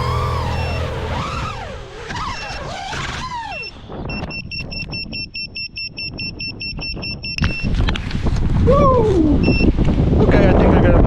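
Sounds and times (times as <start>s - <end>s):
music: 0.0s - 1.7s
rapid electronic beeping: 0.0s - 2.6s.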